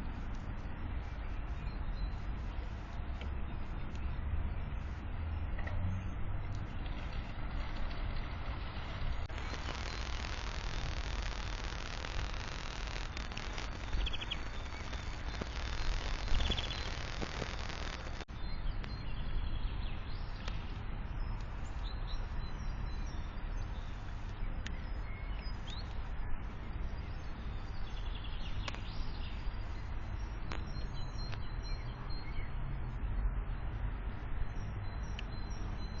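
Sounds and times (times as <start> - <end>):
outdoor background hiss and rumble: 0.0 - 36.0
small birds chirping: 9.0 - 32.6.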